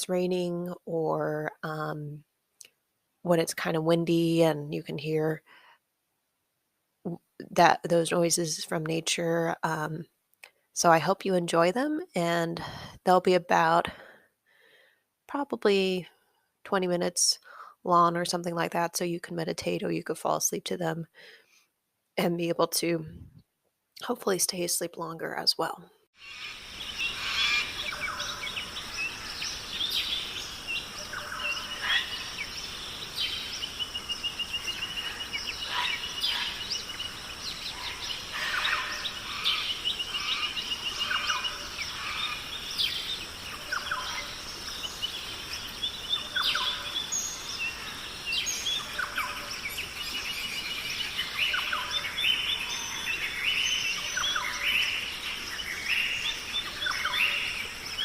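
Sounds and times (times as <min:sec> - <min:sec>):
birds chirping and singing: 0:26.2 - 0:58.0
steady high hiss: 0:26.2 - 0:58.0.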